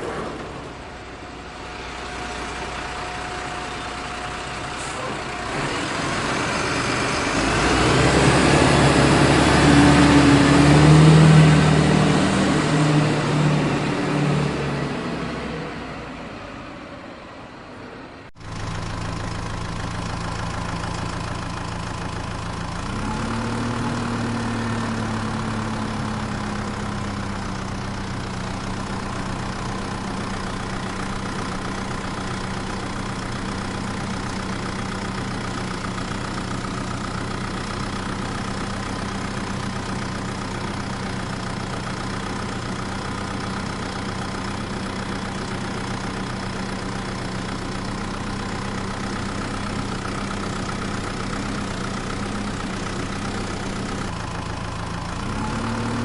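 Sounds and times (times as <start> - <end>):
engine starting and idling: 18.4 - 56.0.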